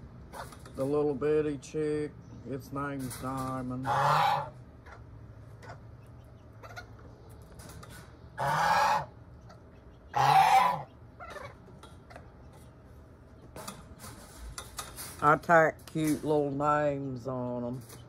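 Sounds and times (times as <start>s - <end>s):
poultry harsh calls: 3.6s - 13.6s.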